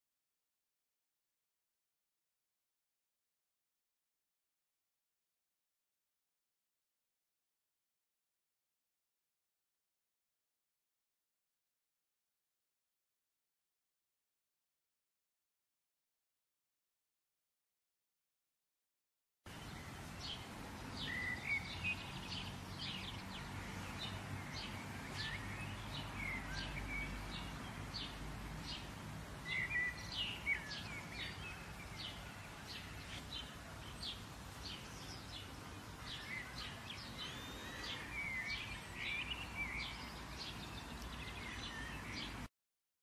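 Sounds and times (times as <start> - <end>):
songbirds chirping: 19.5 - 42.5.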